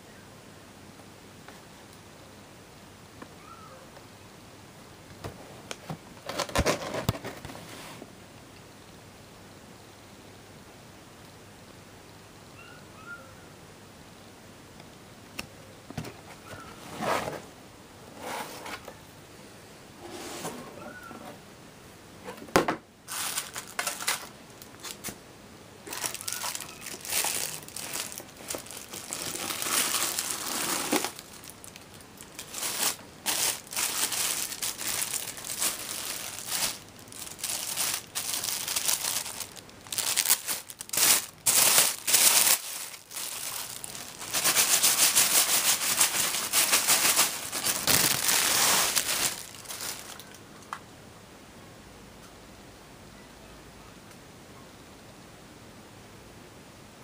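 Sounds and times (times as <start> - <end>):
packaging crinkling: 23.1 - 25.2, 25.8 - 50.4.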